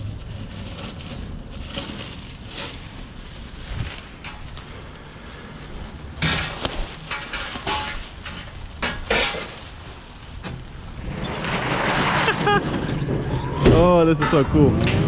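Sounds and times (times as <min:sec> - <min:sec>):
metal tools clanking: 0:06.2 - 0:09.6, 0:14.1 - 0:15.0.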